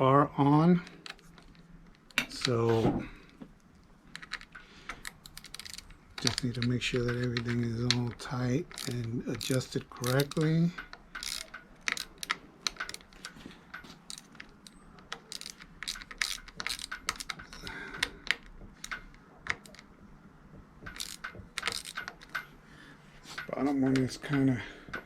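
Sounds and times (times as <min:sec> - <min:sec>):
hand tool clicking on metal screws: 0:04.2 - 0:19.9, 0:20.8 - 0:22.5.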